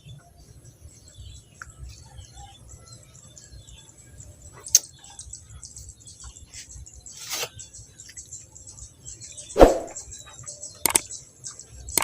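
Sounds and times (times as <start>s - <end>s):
small birds chirping: 0.0s - 12.0s
sharp click: 10.8s - 11.0s.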